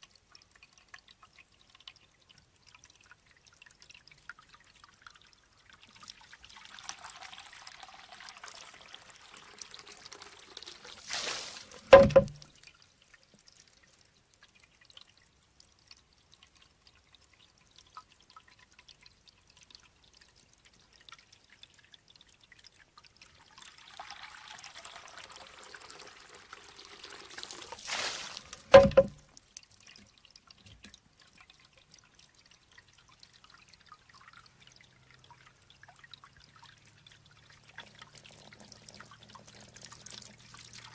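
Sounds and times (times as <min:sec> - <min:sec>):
water dripping: 0:00.0 - 0:40.9
water running and spilling: 0:00.0 - 0:40.9
bamboo knocking on stone: 0:11.9 - 0:12.4, 0:28.7 - 0:29.2.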